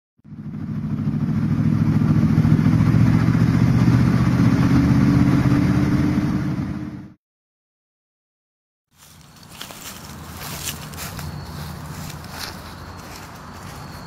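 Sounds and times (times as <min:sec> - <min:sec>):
car engine running: 0:00.2 - 0:07.2.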